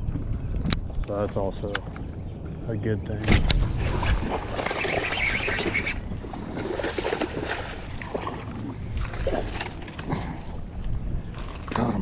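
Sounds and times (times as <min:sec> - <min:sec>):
low wind rumble: 0:00.0 - 0:12.0
water lapping against boat hull: 0:03.2 - 0:12.0.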